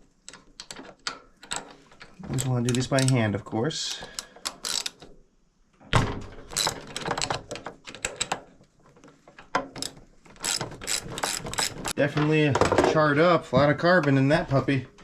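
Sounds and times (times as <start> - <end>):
metallic clicks of hand tools: 4.0 - 5.1.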